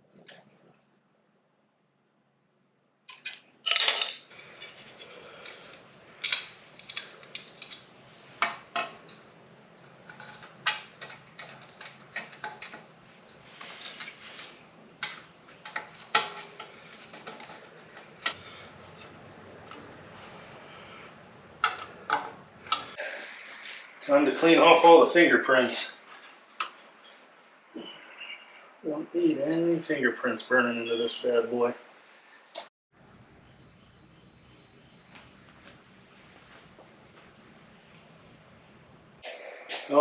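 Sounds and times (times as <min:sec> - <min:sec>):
hand tools clinking on metal: 0:03.1 - 0:09.2.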